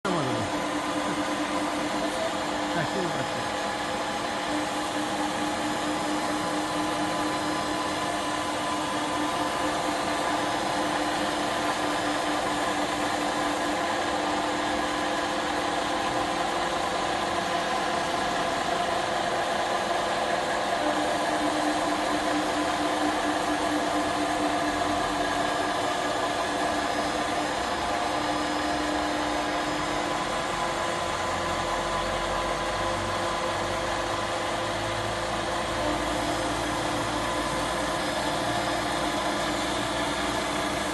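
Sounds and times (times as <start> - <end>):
router motor whine: 20.4 - 32.9, 33.6 - 40.9.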